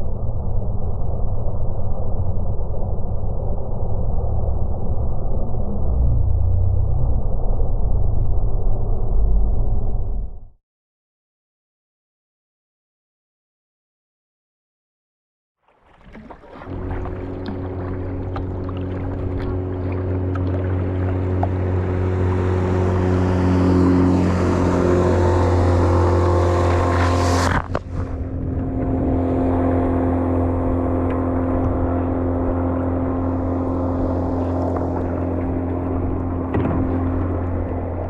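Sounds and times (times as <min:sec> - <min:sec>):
motorboat engine running: 0:15.7 - 0:38.0.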